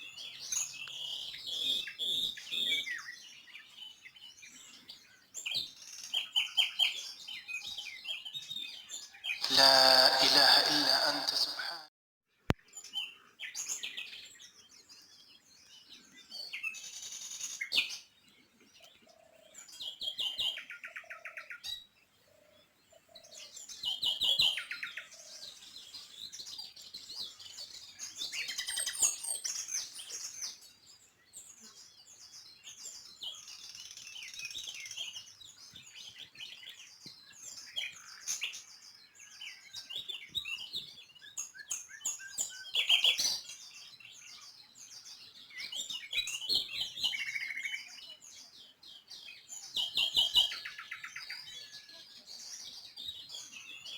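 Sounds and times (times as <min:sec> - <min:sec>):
songbirds chirping and singing: 0:00.0 - 0:11.8, 0:12.7 - 0:53.9.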